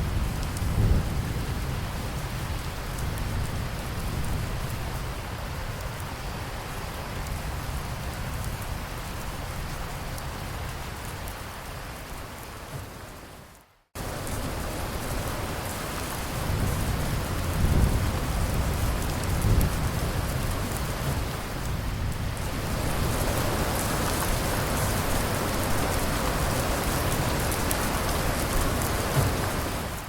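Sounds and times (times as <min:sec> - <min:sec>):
low roll of thunder: 0:00.0 - 0:06.0, 0:14.0 - 0:30.0
steady rain: 0:00.0 - 0:30.0.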